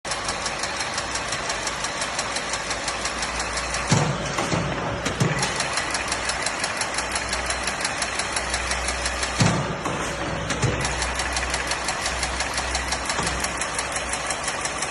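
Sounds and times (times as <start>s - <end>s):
machine clicking rapidly: 0.1s - 14.9s
heavy machine clunks: 3.4s - 14.2s.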